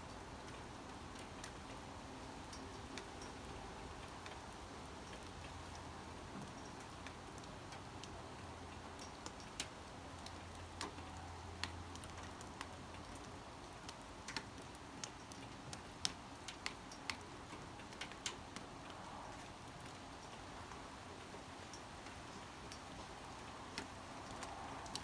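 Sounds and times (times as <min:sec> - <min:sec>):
soft rain hiss: 0:00.0 - 0:25.0
raindrops tapping: 0:05.0 - 0:18.7.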